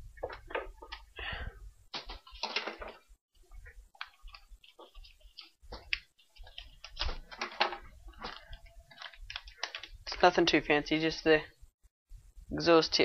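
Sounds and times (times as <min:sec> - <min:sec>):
packaging rustling: 0:03.6 - 0:10.2.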